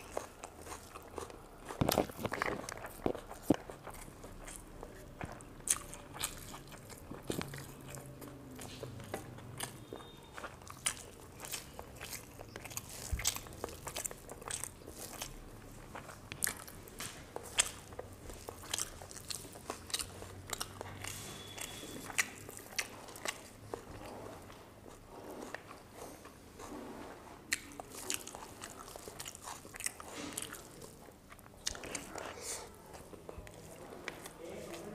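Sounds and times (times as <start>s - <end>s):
wet smacking and crunches: 0.0s - 24.6s
person chewing food: 0.0s - 34.9s.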